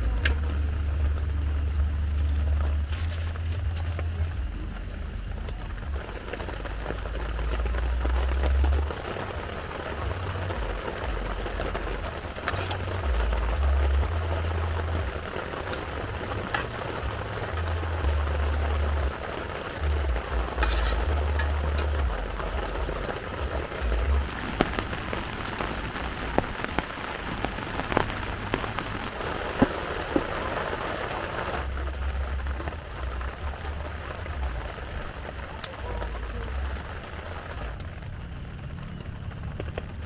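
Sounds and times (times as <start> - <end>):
low rumble: 0.0 - 40.0
steady rain hiss: 0.0 - 40.0.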